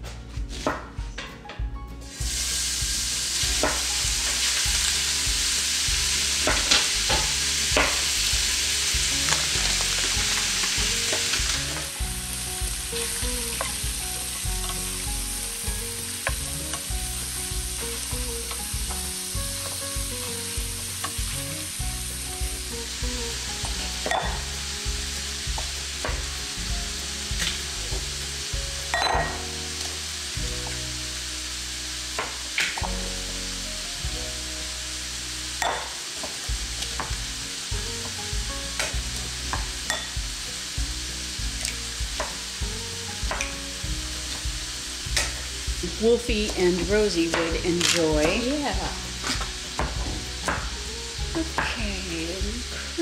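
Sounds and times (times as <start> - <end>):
bacon sizzling in a skillet: 2.1 - 53.0.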